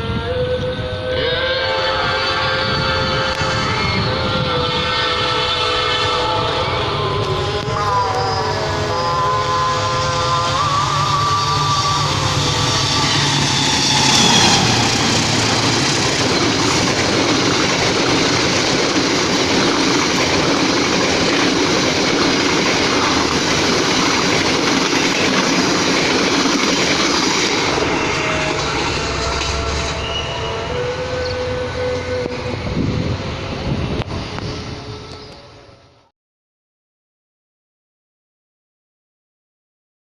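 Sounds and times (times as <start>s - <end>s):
train horn chord: 0.0s - 36.1s
train wheels rushing on rails: 2.4s - 35.3s.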